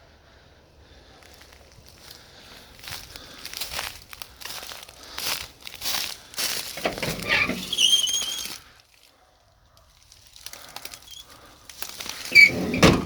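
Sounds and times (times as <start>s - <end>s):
footsteps crunching over dry debris: 1.0s - 6.8s, 7.6s - 12.3s
high squeak: 6.8s - 8.6s, 12.3s - 13.0s
faint crackles: 9.8s - 12.4s.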